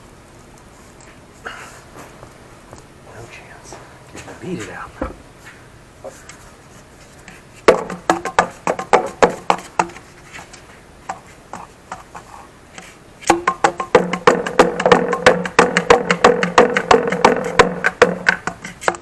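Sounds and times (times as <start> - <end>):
sharp knocks on plastic pipe: 7.6 - 10.0, 13.2 - 19.0.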